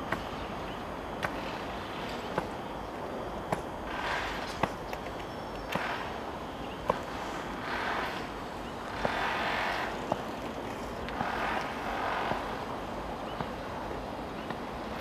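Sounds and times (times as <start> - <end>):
train wheels clicking on rail joints: 3.5 - 15.0
rushing train rumble: 11.1 - 13.1.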